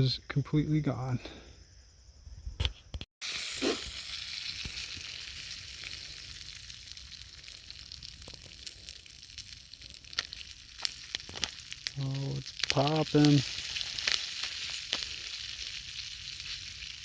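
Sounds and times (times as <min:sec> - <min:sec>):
oil sizzling in a pan: 0:03.2 - 0:17.0
popcorn kernels popping: 0:03.6 - 0:17.0.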